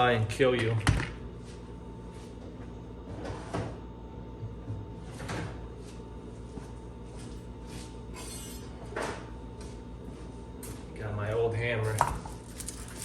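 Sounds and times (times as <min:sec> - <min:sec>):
metal parts knocking and clunking: 0:11.8 - 0:13.0.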